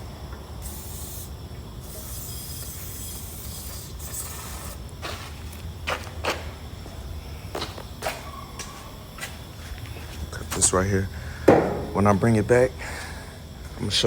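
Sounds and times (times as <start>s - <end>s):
sharp knocks: 11.5s - 12.1s.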